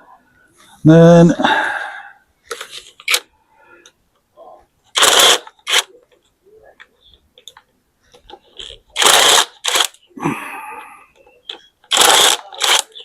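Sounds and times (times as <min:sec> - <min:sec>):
power tool bursts on bolts: 0:05.0 - 0:05.8, 0:11.9 - 0:13.0.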